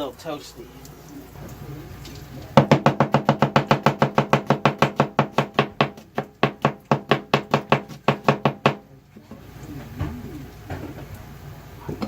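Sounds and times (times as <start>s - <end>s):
knife chopping on cutting board: 2.6s - 8.8s.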